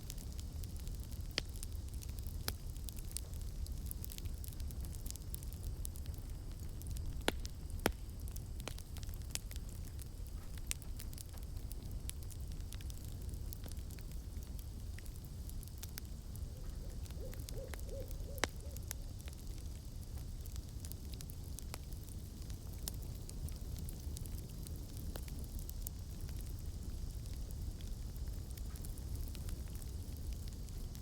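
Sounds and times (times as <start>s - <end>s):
campfire crackling and popping: 0.0s - 31.0s
owl hooting: 16.6s - 18.9s.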